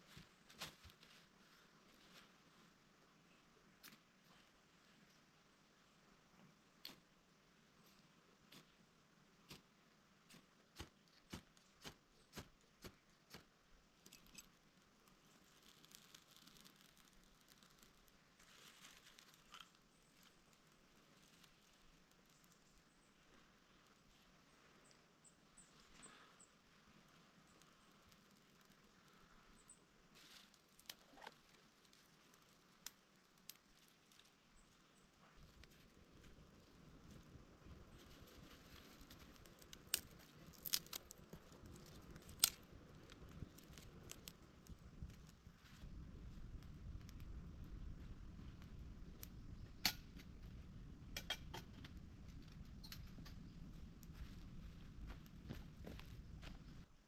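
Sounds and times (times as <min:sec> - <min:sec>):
sharp flint clicks: 0:14.0 - 0:14.6, 0:39.0 - 0:45.4.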